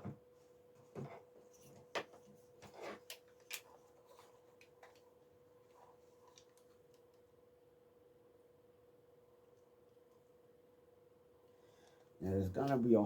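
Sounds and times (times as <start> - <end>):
faint steady hum: 0.0 - 13.0
hands handling cable clicks and rustles: 0.8 - 7.3.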